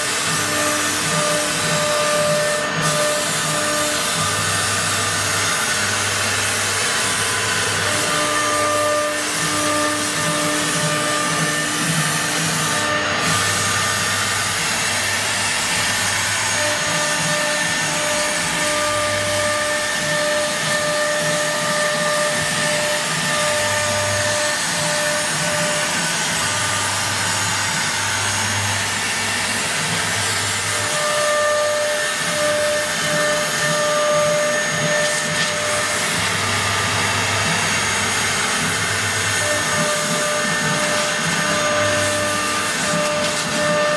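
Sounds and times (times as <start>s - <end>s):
wood router rushing: 0.0s - 43.9s.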